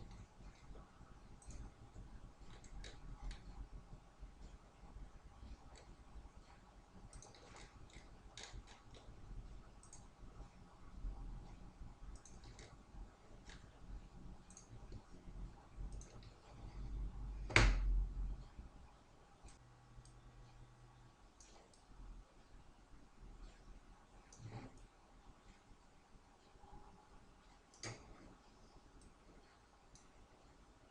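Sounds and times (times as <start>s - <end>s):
computer mouse clicking: 0.0s - 3.7s, 5.4s - 10.2s, 11.4s - 15.2s, 15.8s - 16.9s, 21.4s - 21.9s, 27.6s - 28.4s.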